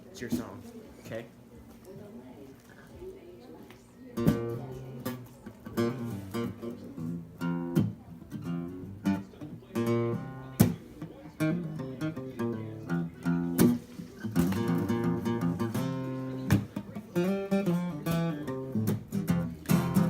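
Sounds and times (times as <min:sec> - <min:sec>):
guitar picked and strummed: 0:04.2 - 0:20.0.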